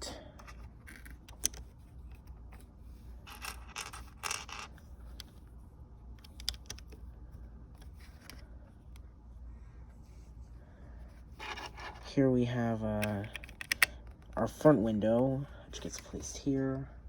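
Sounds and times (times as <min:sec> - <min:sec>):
plastic bricks clicking and rattling: 0:03.3 - 0:05.2, 0:13.0 - 0:14.4.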